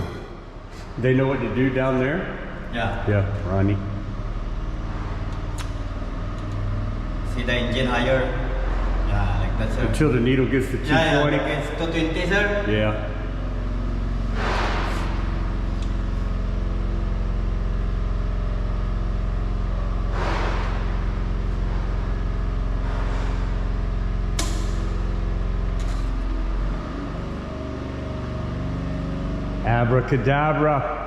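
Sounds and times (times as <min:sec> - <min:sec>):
generator engine running: 0:00.0 - 0:31.0
sharp click: 0:24.4 - 0:24.8.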